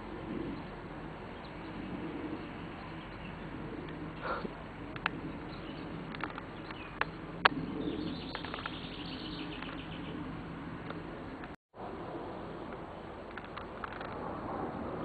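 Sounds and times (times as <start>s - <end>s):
small birds chirping: 0.0s - 11.6s
sharp clicks: 4.9s - 5.2s.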